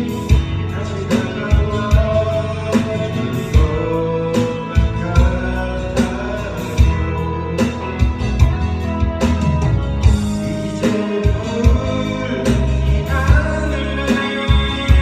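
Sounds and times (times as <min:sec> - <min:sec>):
person singing: 0:00.0 - 0:09.4, 0:10.0 - 0:15.0
guitar: 0:00.0 - 0:15.0
rock ballad backing track: 0:00.0 - 0:15.0
drum hits: 0:08.0 - 0:13.5.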